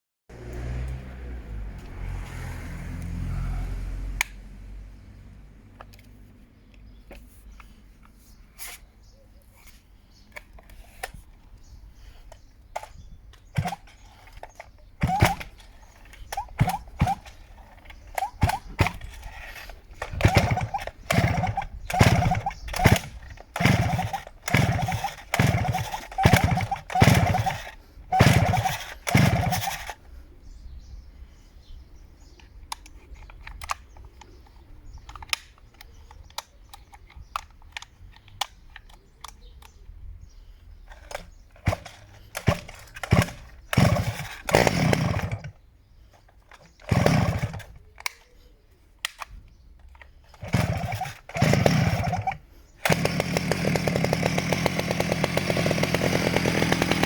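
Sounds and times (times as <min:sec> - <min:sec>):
chainsaw pull-cord starter whirring: 0:10.1 - 0:30.2, 0:32.3 - 0:39.8, 0:40.8 - 0:48.4, 0:49.0 - 0:57.0
handling clicks and knocks: 0:32.2 - 0:40.0.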